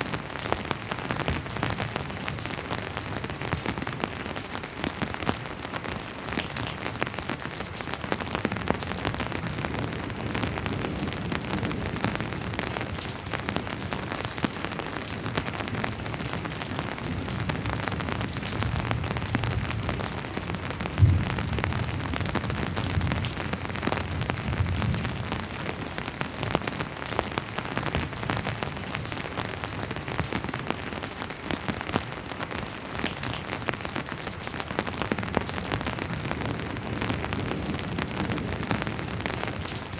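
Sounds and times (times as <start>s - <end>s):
rain falling: 0.0s - 39.9s
raindrops ticking on a surface: 0.0s - 39.9s
distant thunder rumble: 18.6s - 25.2s.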